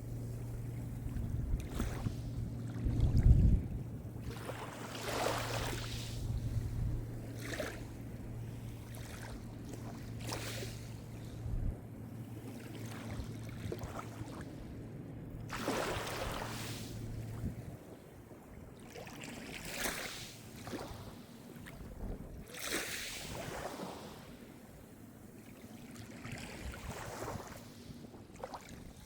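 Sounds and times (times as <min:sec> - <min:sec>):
small waves breaking on shore: 0:00.0 - 0:11.5, 0:12.2 - 0:14.6, 0:15.4 - 0:29.0
steady low hum: 0:00.0 - 0:18.8.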